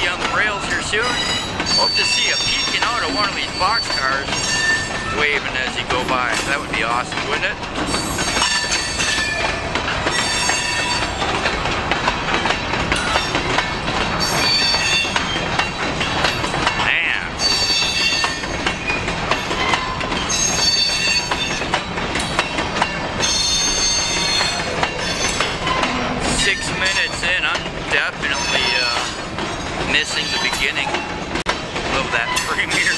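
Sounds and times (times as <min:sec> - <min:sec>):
train wheels clattering over rails: 0:00.0 - 0:32.9
high-pitched wheel squeal: 0:01.0 - 0:05.0.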